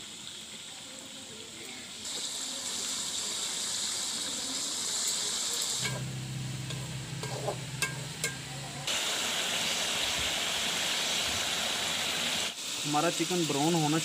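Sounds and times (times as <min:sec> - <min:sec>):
chicken sizzling in hot oil: 0:00.0 - 0:14.0
metal spatula tapping a pan: 0:05.8 - 0:08.7
low steady hum: 0:05.8 - 0:08.9.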